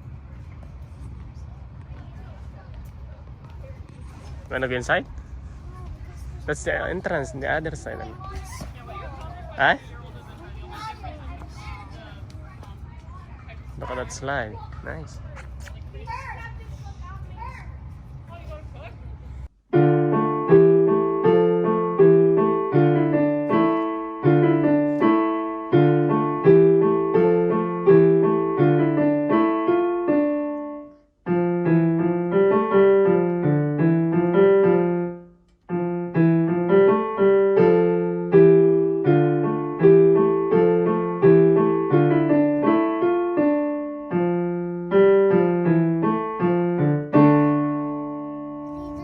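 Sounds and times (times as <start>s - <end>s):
solo piano playing: 19.7s - 49.0s.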